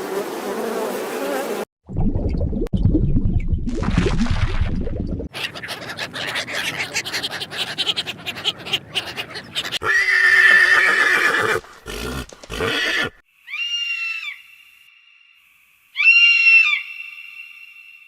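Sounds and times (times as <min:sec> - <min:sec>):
harsh animal call: 0:05.3 - 0:14.3
high-pitched animal calls: 0:05.3 - 0:14.5, 0:16.0 - 0:17.5.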